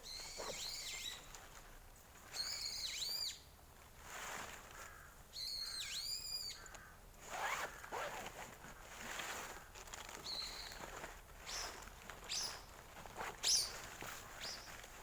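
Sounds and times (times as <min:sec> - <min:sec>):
bird whistled calls: 0:00.0 - 0:01.2, 0:02.4 - 0:03.5, 0:05.4 - 0:06.6, 0:13.4 - 0:13.8.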